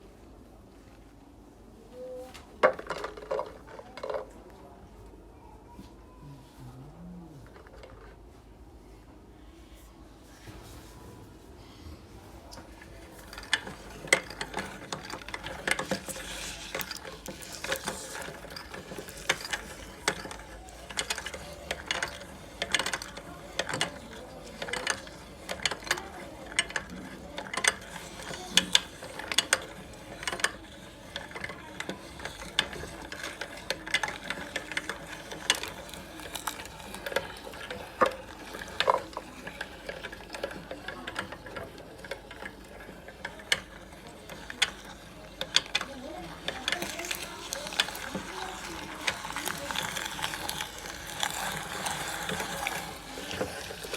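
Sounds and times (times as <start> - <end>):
meat grinder rasp: 13.3 - 53.9
chillies crunching and snapping: 34.3 - 38.4, 46.7 - 53.9.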